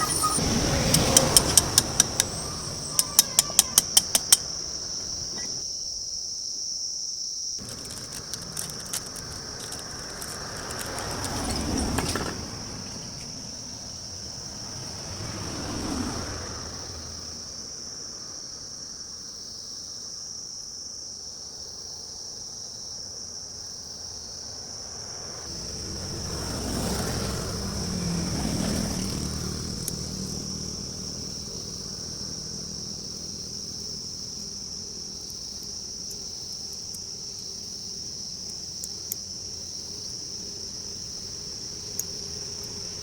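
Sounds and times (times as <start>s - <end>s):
motor vehicle passing: 0.0s - 5.6s, 7.6s - 18.3s, 24.6s - 36.2s, 39.4s - 43.0s
insects droning: 0.0s - 43.0s.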